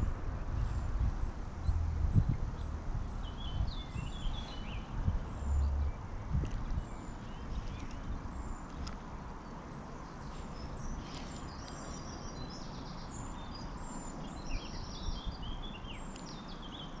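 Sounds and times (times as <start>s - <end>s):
low rumble: 0.0s - 4.1s
small birds singing: 0.0s - 17.0s.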